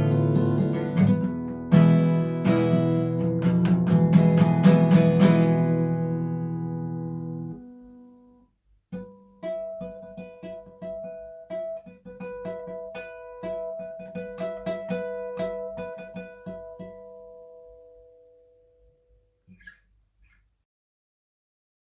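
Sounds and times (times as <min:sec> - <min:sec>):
acoustic guitar strummed chord: 0:00.0 - 0:08.2
acoustic guitar picked notes: 0:00.0 - 0:20.4.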